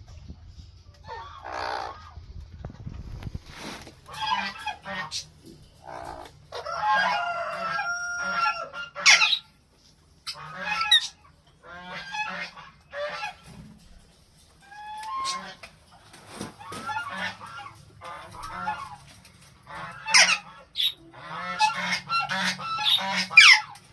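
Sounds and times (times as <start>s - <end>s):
parakeets giving harsh loud calls: 1.0s - 2.2s, 4.1s - 9.5s, 10.2s - 13.4s, 14.8s - 15.7s, 19.7s - 23.8s.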